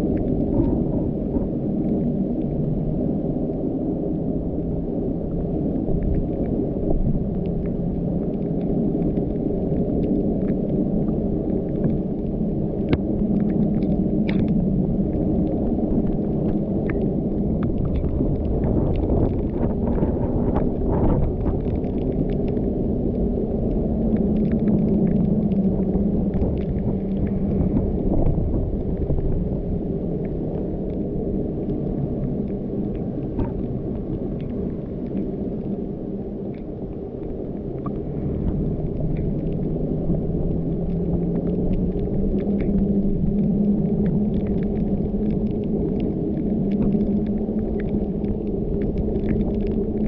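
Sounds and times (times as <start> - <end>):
light ticks: 6.0 - 29.3.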